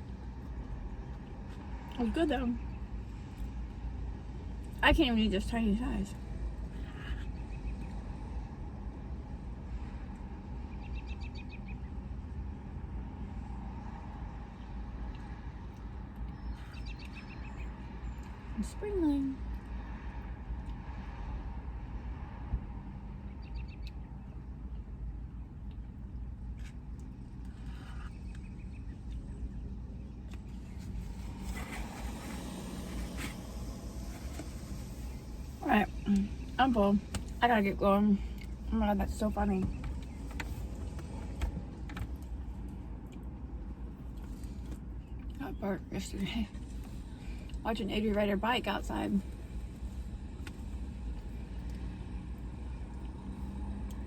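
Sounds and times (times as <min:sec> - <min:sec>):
steady low rumble: 0:00.0 - 0:54.0
faint rustles: 0:29.7 - 0:37.4.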